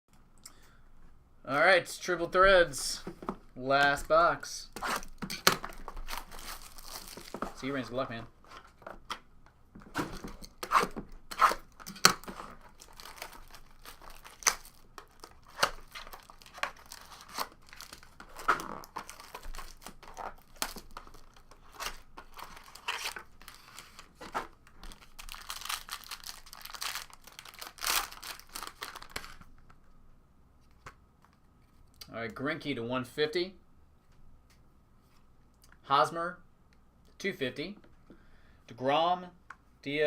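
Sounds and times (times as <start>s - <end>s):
packaging tearing and crumpling: 4.8s - 7.8s, 10.0s - 24.1s, 24.7s - 29.4s.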